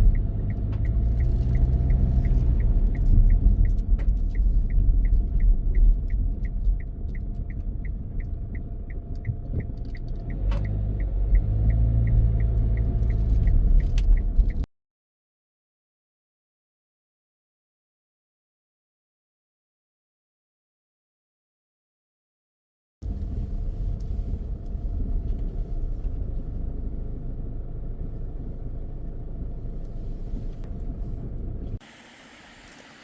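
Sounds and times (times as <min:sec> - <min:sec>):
car rumble from inside cabin: 0:00.0 - 0:14.7, 0:23.0 - 0:33.0
turn signal ticking: 0:00.0 - 0:14.7, 0:23.0 - 0:31.8.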